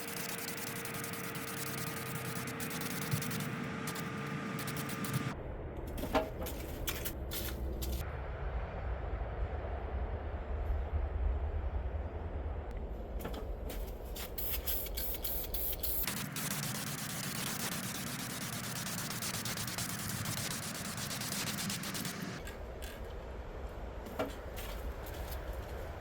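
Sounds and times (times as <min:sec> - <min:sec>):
hissing spray: 0:14.2 - 0:22.4
low motor hum: 0:15.8 - 0:24.0.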